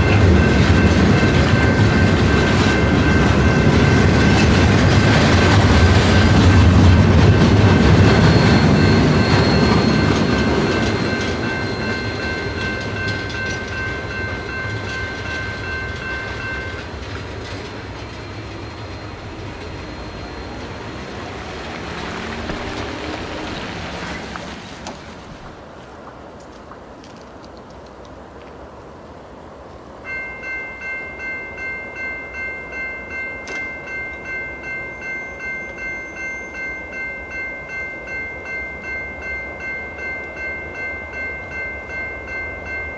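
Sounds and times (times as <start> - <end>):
train rumbling past: 0.0 - 26.4, 28.0 - 42.9
wheels clicking over rail joints: 0.0 - 28.6, 33.2 - 36.8
high-pitched ringing tones: 5.7 - 22.0, 30.0 - 42.9.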